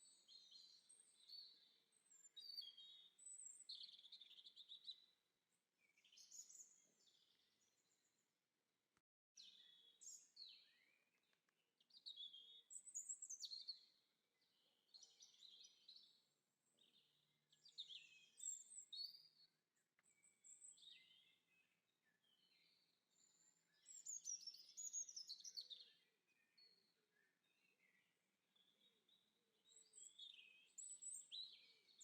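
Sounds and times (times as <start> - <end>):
faint songbird chirps and trills: 0.0 - 8.2, 9.4 - 32.0.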